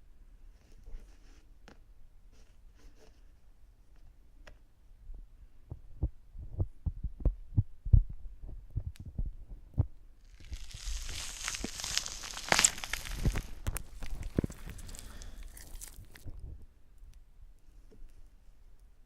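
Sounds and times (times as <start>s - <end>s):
scratchy rustling with crackles: 10.3s - 16.4s.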